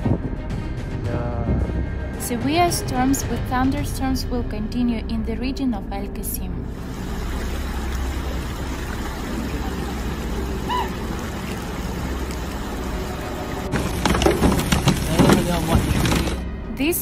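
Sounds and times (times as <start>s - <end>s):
floodwater rushing: 6.7s - 16.4s.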